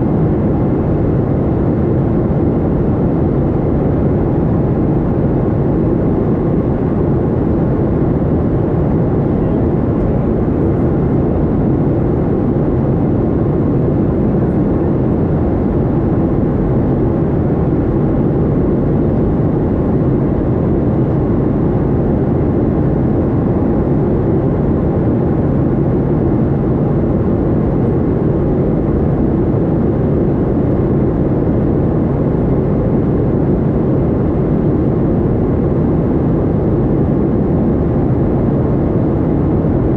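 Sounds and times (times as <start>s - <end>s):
airliner engines roaring: 0.0s - 39.9s.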